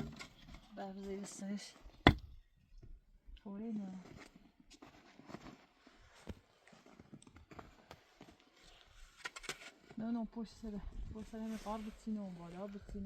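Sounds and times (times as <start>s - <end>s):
knocks and scrapes in snow: 3.6s - 13.0s.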